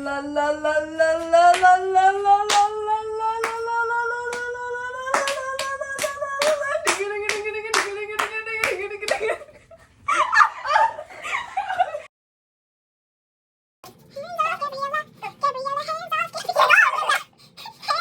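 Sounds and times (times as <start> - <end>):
person singing: 0.0 - 9.5
hand claps: 2.5 - 2.7, 3.4 - 3.7, 4.3 - 4.5, 5.1 - 9.4.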